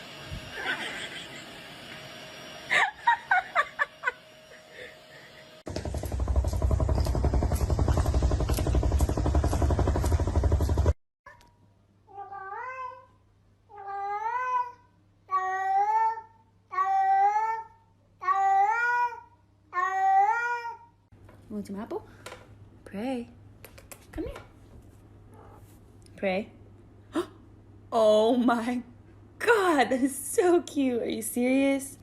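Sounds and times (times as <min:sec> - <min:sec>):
loud low rumble: 0:05.7 - 0:11.0.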